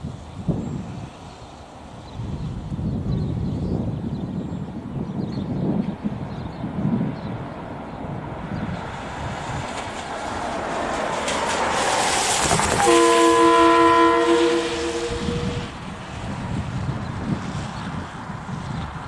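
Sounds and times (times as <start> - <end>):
approaching train: 0.0 - 19.0
train horn blast: 12.4 - 15.9.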